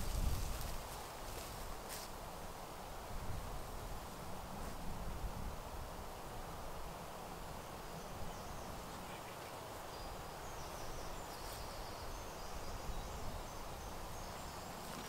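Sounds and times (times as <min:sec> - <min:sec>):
woodland background hiss: 0:00.0 - 0:15.0.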